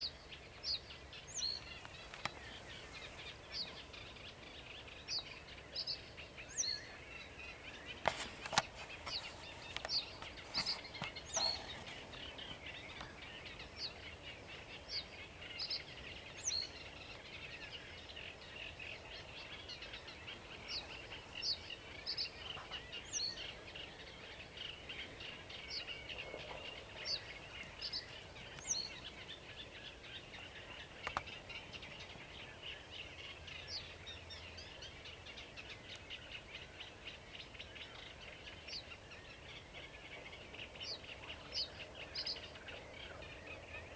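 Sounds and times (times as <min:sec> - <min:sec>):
warbler scratchy chattering song: 0:07.9 - 0:13.2.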